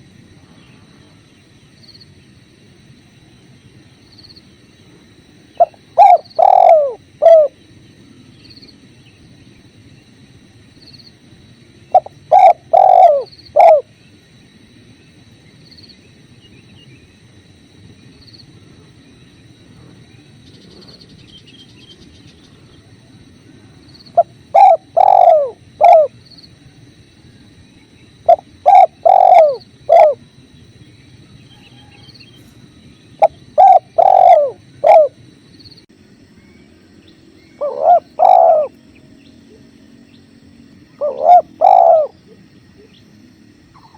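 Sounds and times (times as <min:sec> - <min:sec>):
dove cooing: 0:05.5 - 0:07.6, 0:11.9 - 0:14.0, 0:24.1 - 0:27.5, 0:28.1 - 0:30.3, 0:33.2 - 0:35.2, 0:37.5 - 0:43.0.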